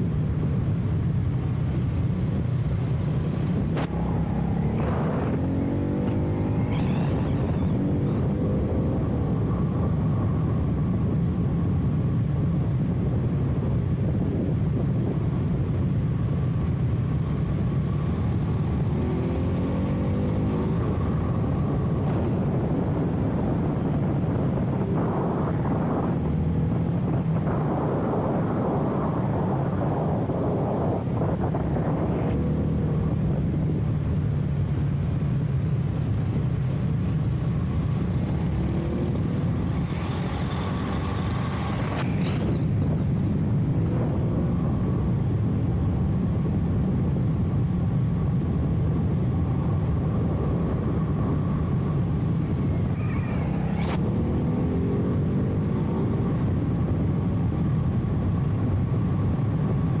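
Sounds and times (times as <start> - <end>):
wind rushing over microphone: 0.0 - 60.0
motorcycle engine revving: 1.7 - 9.7, 15.1 - 23.5, 29.0 - 42.9, 49.7 - 60.0.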